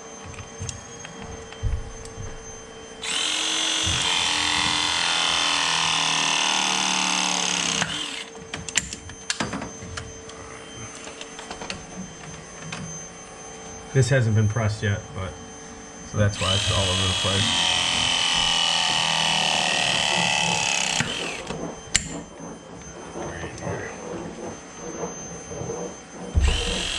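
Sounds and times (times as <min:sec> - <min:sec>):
press tool motor crimping: 0:03.0 - 0:08.3, 0:16.4 - 0:22.2.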